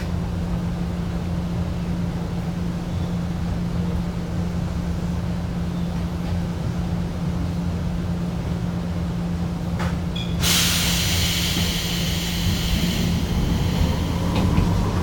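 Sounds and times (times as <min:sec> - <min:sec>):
electric train running hum: 0:00.0 - 0:15.0
loud hiss of air: 0:10.4 - 0:15.0.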